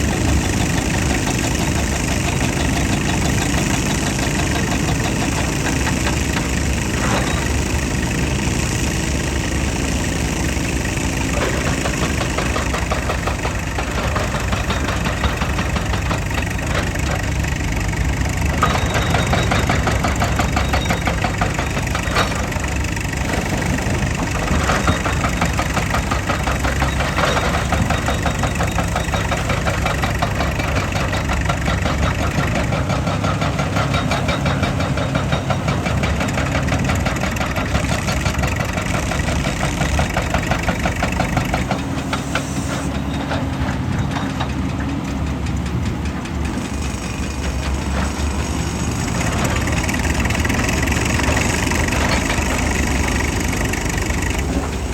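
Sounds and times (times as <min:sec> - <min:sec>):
excavator diesel engine clattering: 0:00.0 - 0:54.9.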